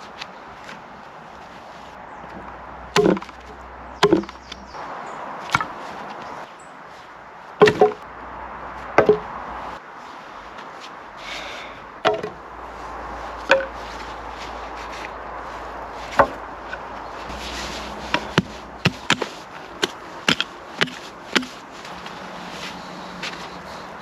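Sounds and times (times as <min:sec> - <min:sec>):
axe chopping wood: 0:03.0 - 0:04.4, 0:05.5 - 0:05.8, 0:07.6 - 0:08.0, 0:08.9 - 0:09.3, 0:12.0 - 0:12.4, 0:13.4 - 0:13.8, 0:17.3 - 0:21.6.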